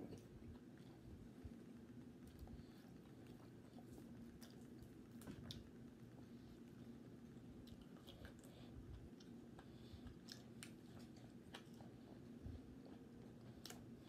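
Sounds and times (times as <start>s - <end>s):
person chewing: 2.2s - 5.7s, 6.6s - 14.0s.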